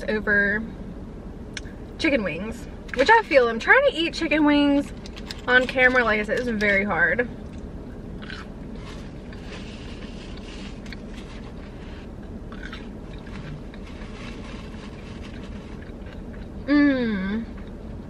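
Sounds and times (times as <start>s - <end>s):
steady low hum: 0.0s - 18.0s
person chewing: 7.4s - 16.7s.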